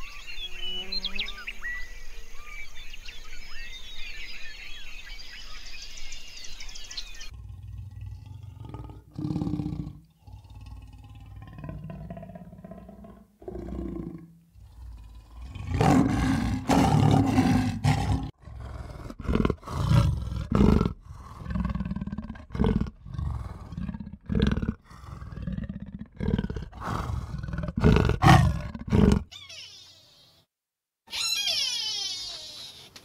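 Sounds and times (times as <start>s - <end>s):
large animal roaring: 7.3s - 29.3s.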